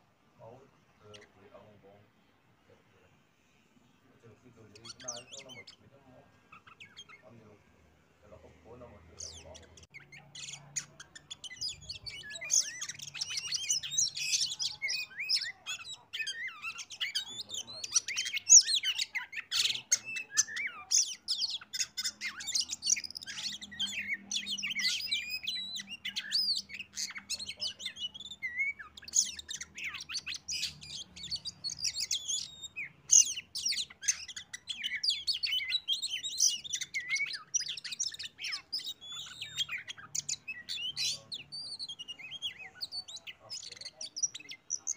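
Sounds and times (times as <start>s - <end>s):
bird singing whistles: 9.9s - 44.9s.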